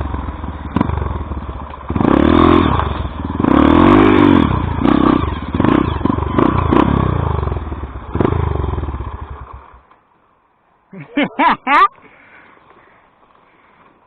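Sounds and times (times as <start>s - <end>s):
dirt bike engine revving: 0.0s - 9.7s.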